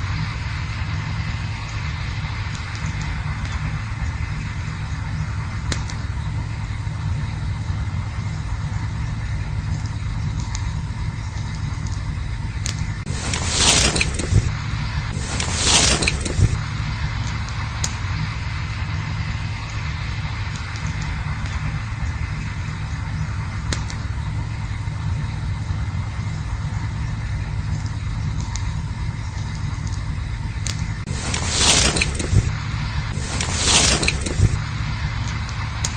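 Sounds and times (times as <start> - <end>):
campfire crackling: 0.0 - 35.9
low rumble: 0.0 - 35.9
fire pop: 5.6 - 6.1, 12.6 - 24.2
loud rushing hiss: 13.0 - 26.1, 31.0 - 35.9.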